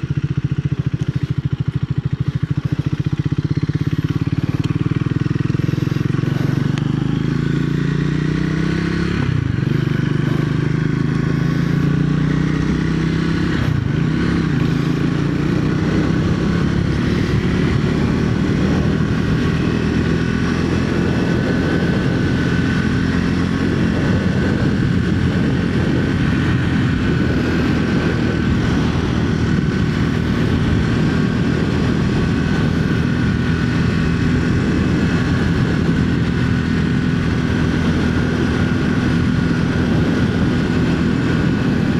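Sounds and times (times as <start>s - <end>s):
motorcycle engine accelerating: 0.0s - 41.9s
wind and road noise: 0.0s - 41.9s.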